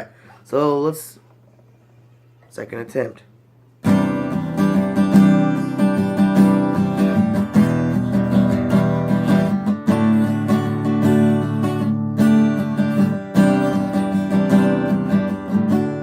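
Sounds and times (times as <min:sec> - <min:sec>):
acoustic guitar strumming: 0:03.8 - 0:16.0.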